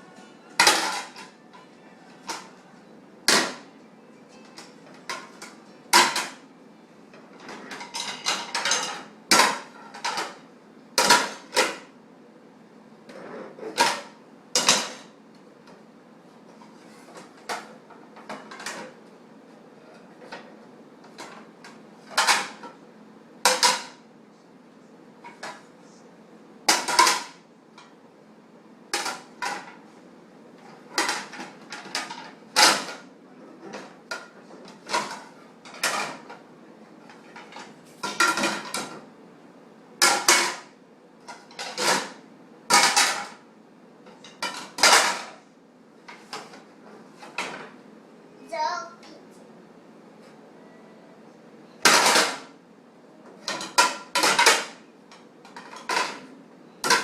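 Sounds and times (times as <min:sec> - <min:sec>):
plates and cutlery clattering: 0:00.6 - 0:02.6, 0:04.4 - 0:06.4, 0:07.4 - 0:10.4, 0:13.1 - 0:15.1, 0:21.1 - 0:22.8, 0:23.5 - 0:24.0, 0:26.7 - 0:27.9, 0:30.6 - 0:36.4, 0:37.0 - 0:39.0, 0:40.0 - 0:43.4, 0:44.1 - 0:45.4, 0:51.8 - 0:52.6, 0:53.4 - 0:57.0.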